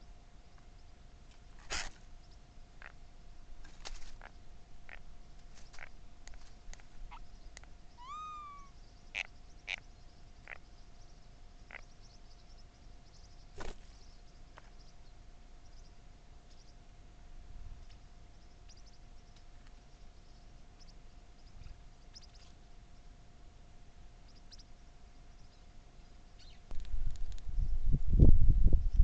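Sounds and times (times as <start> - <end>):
faint steady hum: 0.0 - 29.0
faint high chirping: 7.1 - 16.8
bird call: 8.0 - 9.8.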